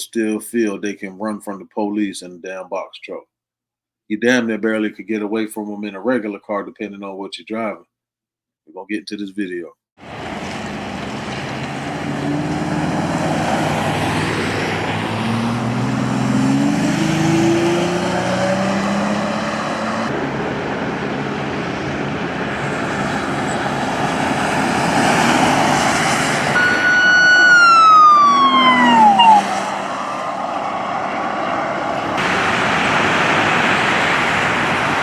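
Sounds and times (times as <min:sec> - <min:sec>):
vehicle and road noise: 0:10.0 - 0:35.0
police siren: 0:26.5 - 0:32.0.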